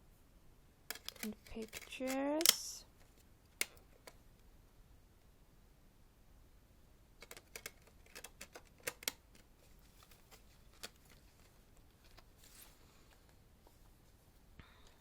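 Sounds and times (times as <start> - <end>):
packaging clicks and taps: 0.9 - 2.8, 7.2 - 9.5.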